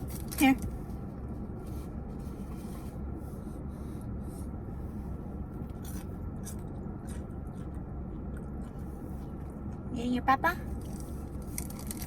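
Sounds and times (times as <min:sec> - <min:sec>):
steady low hum: 0:00.0 - 0:12.0
food packaging rustling: 0:10.8 - 0:12.0
packaging crinkles: 0:10.9 - 0:12.0.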